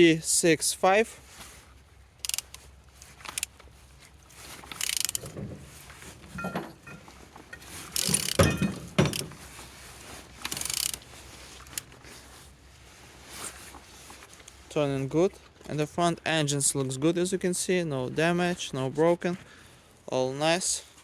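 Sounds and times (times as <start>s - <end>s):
engine turned by wrench clicking: 2.2s - 3.8s, 4.5s - 9.4s, 10.3s - 12.0s.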